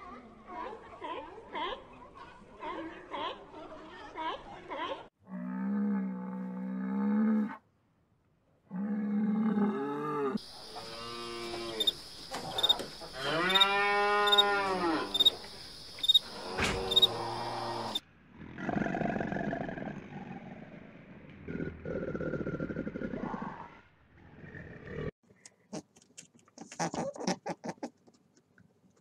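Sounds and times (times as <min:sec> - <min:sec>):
cattle mooing: 0:08.8 - 0:15.4, 0:16.2 - 0:18.0.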